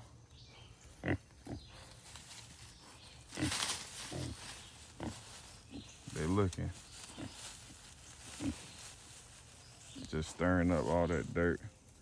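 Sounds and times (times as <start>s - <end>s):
pigs grunting: 1.0s - 1.9s
soil rustling: 1.6s - 12.0s.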